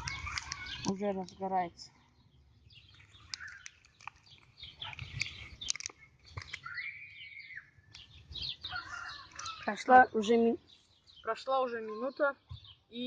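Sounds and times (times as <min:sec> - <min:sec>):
campfire crackling: 0:00.0 - 0:01.6, 0:02.6 - 0:10.0
birds chirping: 0:00.0 - 0:13.0.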